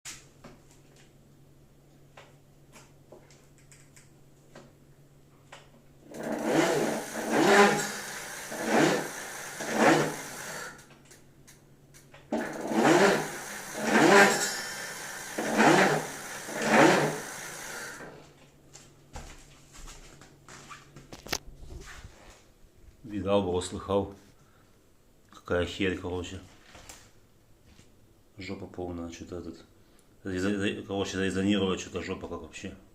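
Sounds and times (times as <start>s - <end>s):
electric bike motor humming: 6.1s - 10.8s, 12.4s - 18.1s
motor spinning up bursts: 6.1s - 10.8s, 12.3s - 18.1s.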